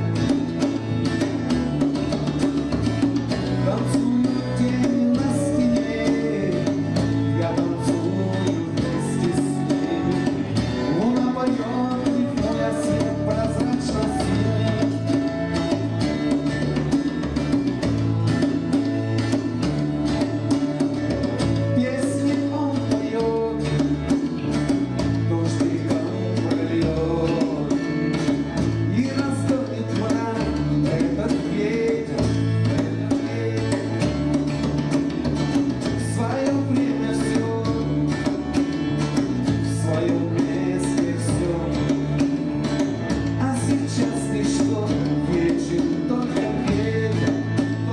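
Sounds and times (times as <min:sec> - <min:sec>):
bass line: 0:00.0 - 0:47.9
guitar: 0:00.0 - 0:47.9
person singing: 0:03.6 - 0:16.2, 0:25.1 - 0:28.2, 0:43.3 - 0:47.9.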